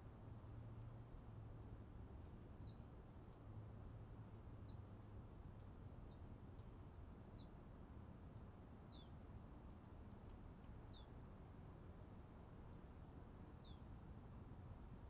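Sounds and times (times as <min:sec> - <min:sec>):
small bird chirping: 0:10.9 - 0:11.1.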